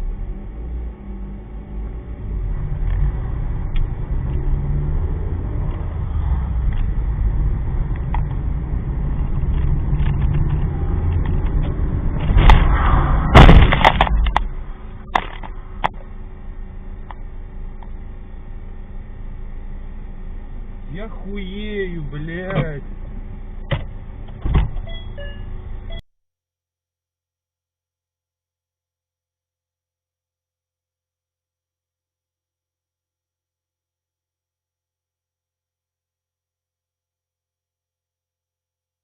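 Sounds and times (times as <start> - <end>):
car road and engine noise: 0.0 - 26.0
car crash crunching impact: 12.2 - 15.6
sharp knocks: 13.3 - 14.5.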